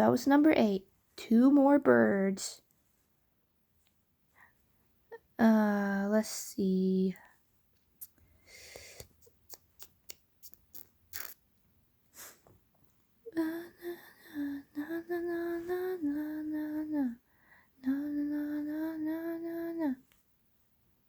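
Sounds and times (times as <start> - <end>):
woman humming: 13.3 - 17.2, 17.8 - 20.0.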